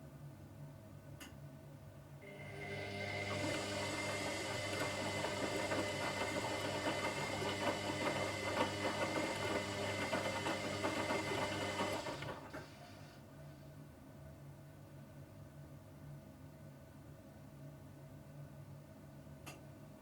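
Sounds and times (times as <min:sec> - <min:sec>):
washing machine running: 0:02.2 - 0:13.2.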